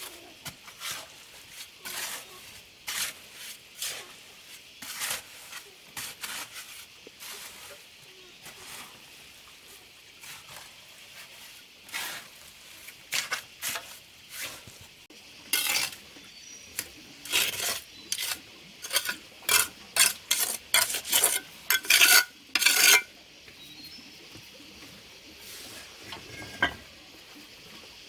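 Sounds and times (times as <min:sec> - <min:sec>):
metal tool scraping and clinking: 0:15.6 - 0:16.0, 0:16.8 - 0:23.1, 0:26.1 - 0:26.9.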